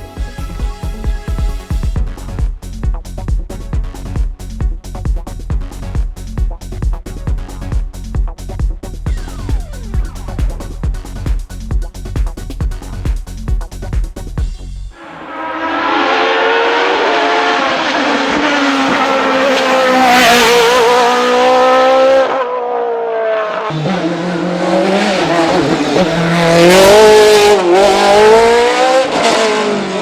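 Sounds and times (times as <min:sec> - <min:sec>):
racing car engine revving: 0:14.9 - 0:30.0.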